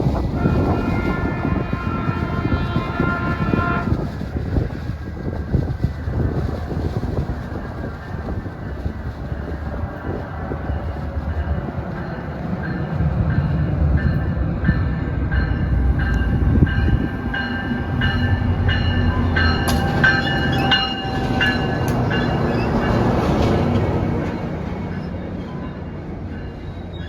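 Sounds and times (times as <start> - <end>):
train rumbling past: 0.0 - 27.0
wheels squealing on rails: 14.7 - 27.0.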